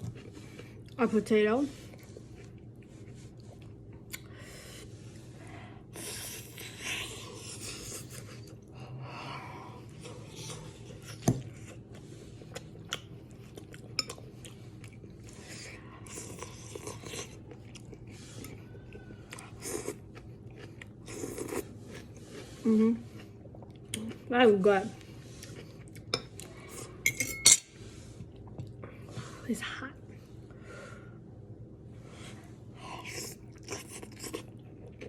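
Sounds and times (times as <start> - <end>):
person chewing food: 0.0 - 1.0, 1.8 - 8.8, 9.7 - 24.3, 25.0 - 27.0, 28.0 - 29.1, 32.8 - 35.0.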